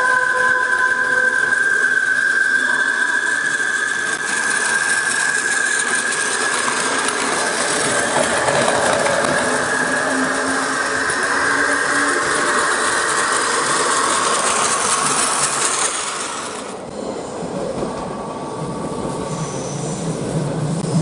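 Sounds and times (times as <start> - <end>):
train motor whine: 0.0 - 21.0
train running noise hiss: 0.0 - 21.0.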